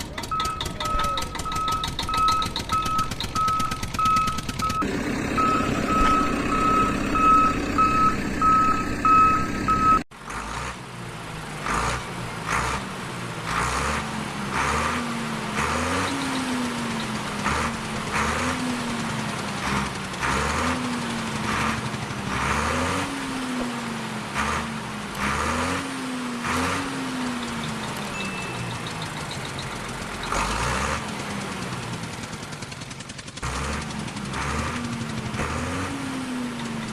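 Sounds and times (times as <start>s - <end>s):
engine revving: 0.0s - 36.9s
reversing alarm beeping: 0.3s - 10.0s.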